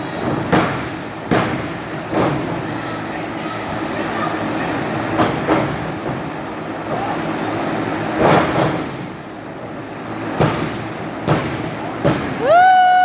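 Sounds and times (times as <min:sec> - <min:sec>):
wrestling crowd noise: 0:01.6 - 0:09.0.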